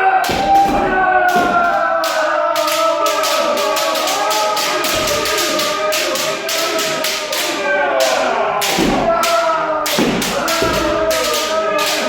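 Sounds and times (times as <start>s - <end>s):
people shouting: 0.0s - 12.0s
bamboo swords striking armour: 0.2s - 2.7s, 8.1s - 12.0s.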